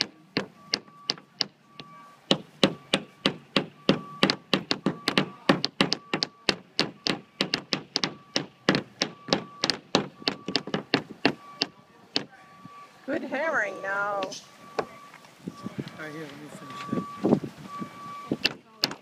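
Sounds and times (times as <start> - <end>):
hammer knocking nails into wood: 2.3 - 12.3, 18.4 - 19.0.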